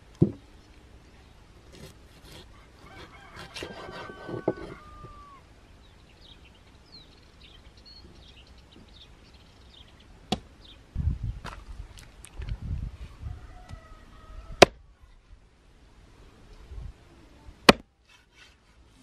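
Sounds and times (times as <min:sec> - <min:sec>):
birds chirping: 0:00.5 - 0:10.9.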